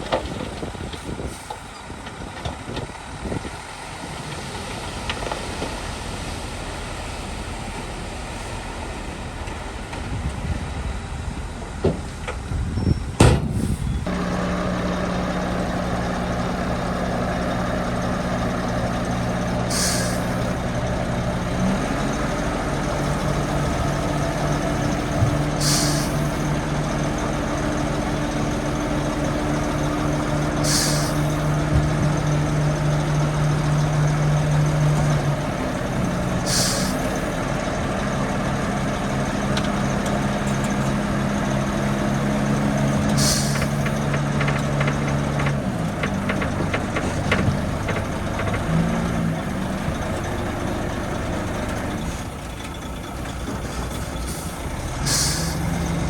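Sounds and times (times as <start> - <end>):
diesel engine running: 0.0 - 56.0
compressed air hissing: 19.7 - 20.6, 25.3 - 26.4, 30.6 - 31.5, 36.4 - 37.4, 43.2 - 43.9, 54.2 - 56.0.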